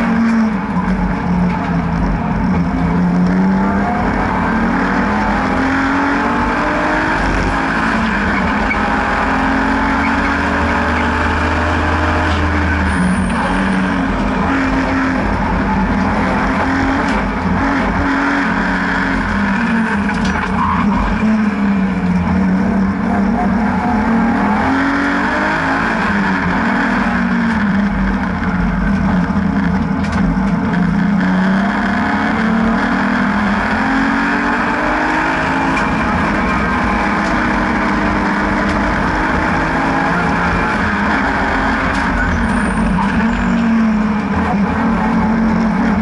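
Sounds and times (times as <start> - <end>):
car engine accelerating: 0.0 - 46.0
road and wind noise: 0.0 - 46.0.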